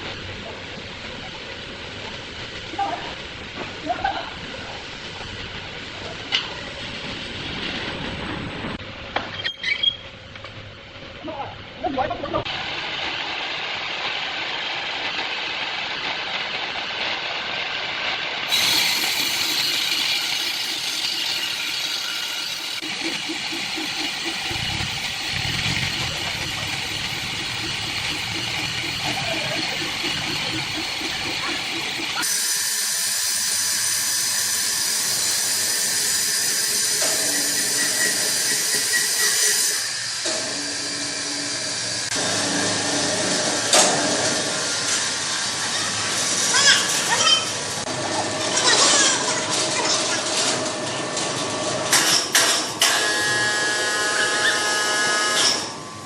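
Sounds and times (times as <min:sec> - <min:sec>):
woodworking machinery hissing: 0:12.3 - 0:56.0.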